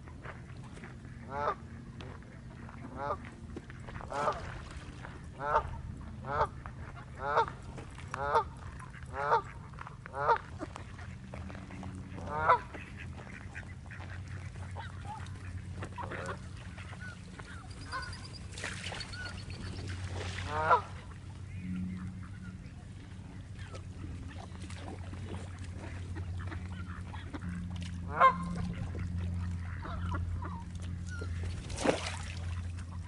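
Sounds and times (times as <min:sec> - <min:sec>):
waterbird harsh calls: 0:08.2 - 0:33.0.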